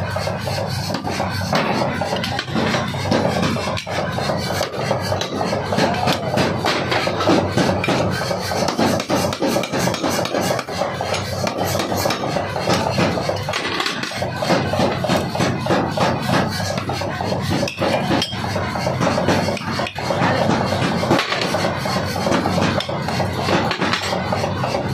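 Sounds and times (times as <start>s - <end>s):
forging hammer pounding steel: 0.0s - 24.9s.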